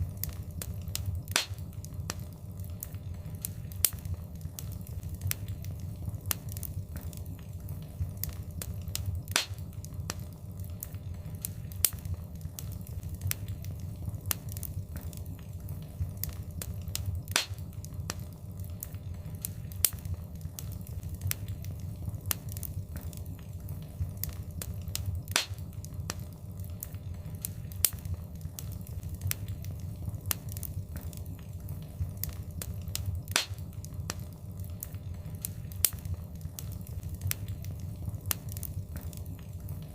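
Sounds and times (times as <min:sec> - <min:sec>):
low rumble of flames: 0:00.0 - 0:39.9
wood fire popping and snapping: 0:00.0 - 0:39.9.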